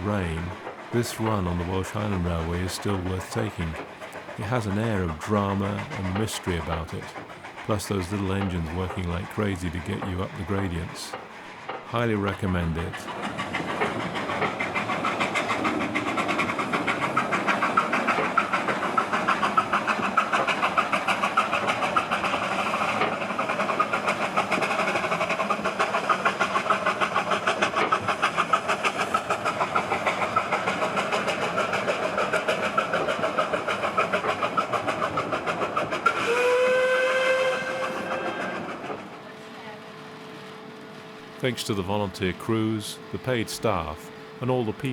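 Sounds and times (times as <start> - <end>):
steam locomotive exhaust chuffs: 0.0 - 44.9
steam whistle: 36.2 - 38.7.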